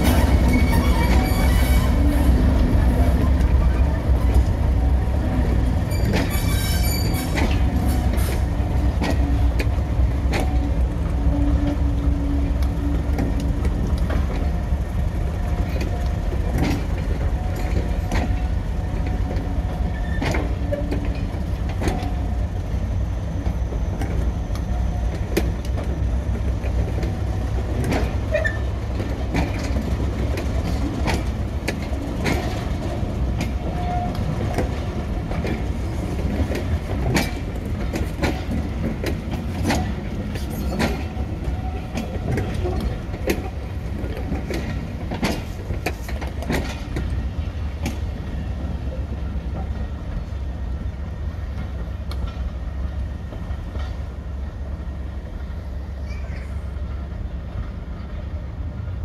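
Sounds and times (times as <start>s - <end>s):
wheels clicking over rail joints: 0.0s - 22.4s, 23.3s - 50.3s, 51.4s - 54.7s
diesel train rumbling: 0.0s - 59.0s
high squeal: 5.9s - 7.4s.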